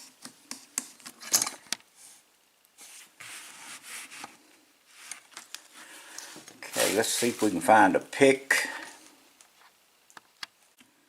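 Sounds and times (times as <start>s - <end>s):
rubbing and scraping: 2.8s - 5.8s, 6.6s - 7.8s.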